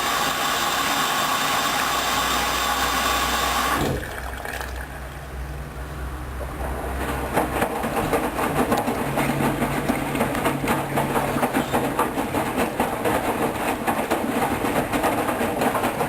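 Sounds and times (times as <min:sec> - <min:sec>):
washing machine rumble and knocks: 0:06.3 - 0:16.0.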